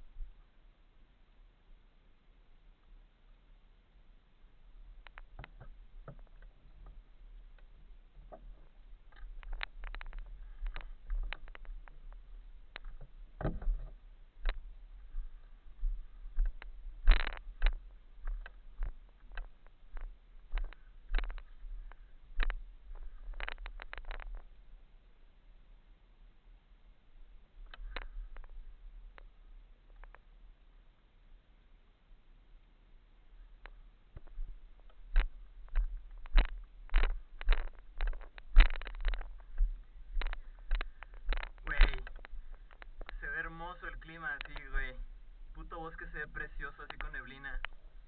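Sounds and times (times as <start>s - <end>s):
mountain bike knocking and rattling: 5.0s - 14.8s, 16.4s - 24.6s, 34.2s - 43.3s.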